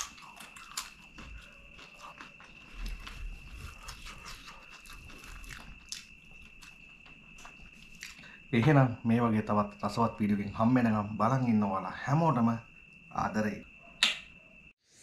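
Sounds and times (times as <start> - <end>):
crunchy bites and chewing: 0.0 - 8.5.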